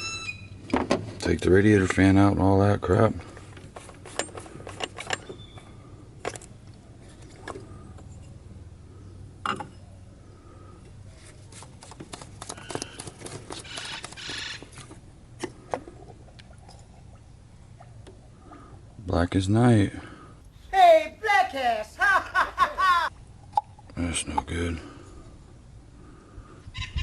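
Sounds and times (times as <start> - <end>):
steady low hum: 0.0 - 20.8, 22.3 - 27.0
hand tools clicking and clinking: 3.3 - 6.5.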